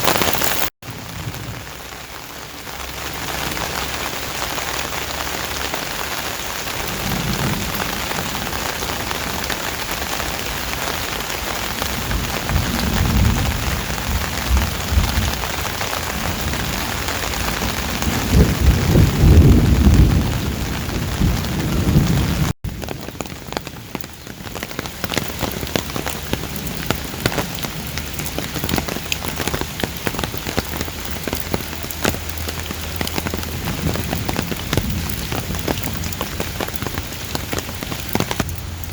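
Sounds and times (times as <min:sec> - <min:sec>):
heavy rain falling: 0:00.0 - 0:38.9
raindrops ticking: 0:00.0 - 0:38.9
deep rumbling: 0:25.8 - 0:38.9.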